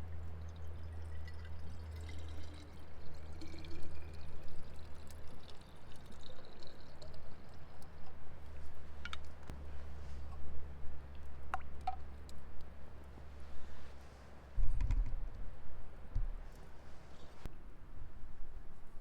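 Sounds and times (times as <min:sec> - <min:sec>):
liquid pouring into vessel: 0:00.1 - 0:09.3.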